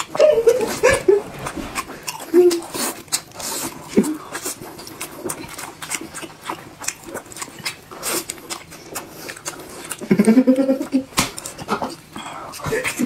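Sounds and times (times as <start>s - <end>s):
wet chewing and lip-smacking: 0.0s - 13.0s.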